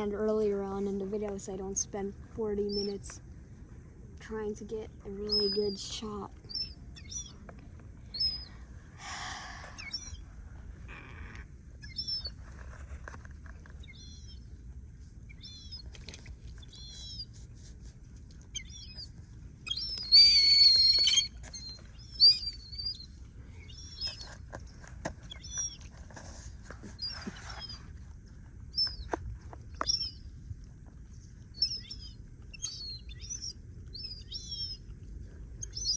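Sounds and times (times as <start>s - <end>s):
low steady rumble: 0.0s - 35.9s
birds chirping: 4.3s - 10.3s, 11.2s - 12.4s, 13.8s - 14.5s, 15.3s - 17.3s, 18.5s - 24.4s, 25.2s - 25.9s, 29.8s - 30.3s, 31.5s - 35.0s, 35.6s - 35.9s
loud bird call: 19.7s - 22.8s.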